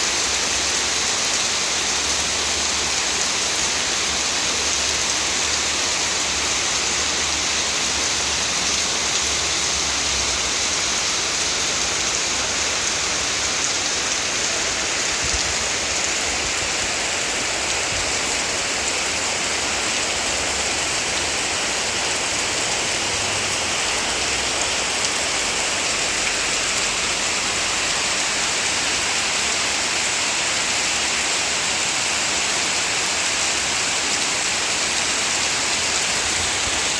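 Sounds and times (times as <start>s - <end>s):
heavy rain pouring: 0.0s - 36.9s.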